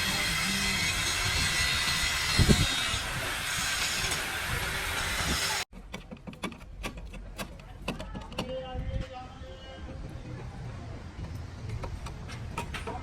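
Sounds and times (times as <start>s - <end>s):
high-pressure jet hissing: 0.0s - 5.7s.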